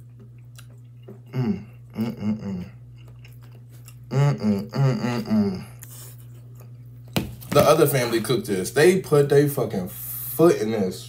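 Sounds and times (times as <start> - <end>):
person chewing food: 0.0 - 7.2
steady low hum: 0.0 - 11.0
person humming mm: 1.2 - 3.0, 4.0 - 6.0.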